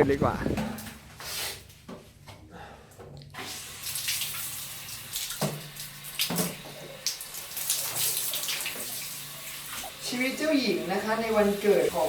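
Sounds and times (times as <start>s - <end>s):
water running from a tap: 3.4s - 12.0s.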